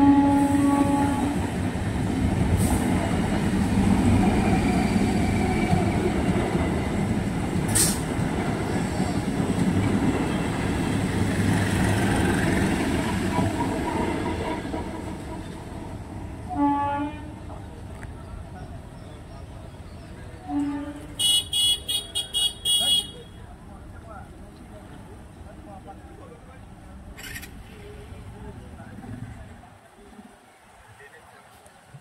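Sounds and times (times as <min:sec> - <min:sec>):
train horn: 0:00.0 - 0:01.6, 0:16.4 - 0:17.4, 0:20.4 - 0:23.2
train wheels rumbling on rails: 0:00.0 - 0:16.6.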